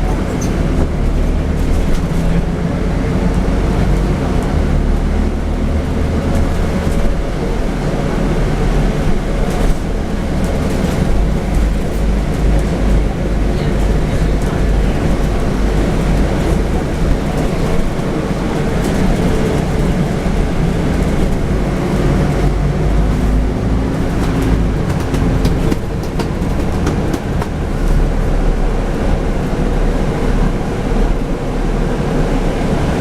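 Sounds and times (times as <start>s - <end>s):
bus engine low rumble: 0.0s - 33.0s
road noise: 0.0s - 33.0s
body clicks and rattles: 0.1s - 2.7s, 8.9s - 28.2s.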